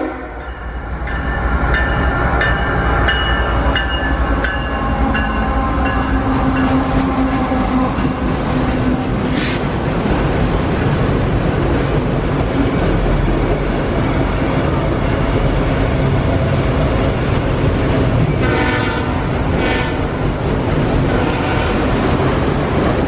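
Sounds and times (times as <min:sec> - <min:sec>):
freight train rumbling and rattling: 0:00.0 - 0:23.0.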